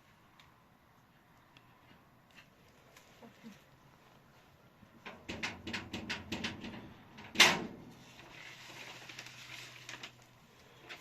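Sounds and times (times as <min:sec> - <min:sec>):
sharp knocks and clatters: 0:05.0 - 0:07.9.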